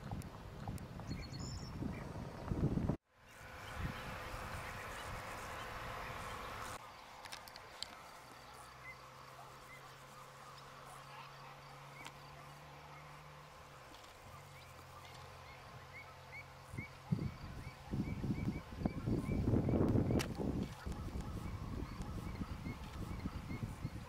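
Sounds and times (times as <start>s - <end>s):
rumbling wind noise on microphone: 0.0s - 6.8s, 16.7s - 24.0s
low steady hum: 0.0s - 24.0s
bird chirps: 0.6s - 2.4s, 7.8s - 24.0s.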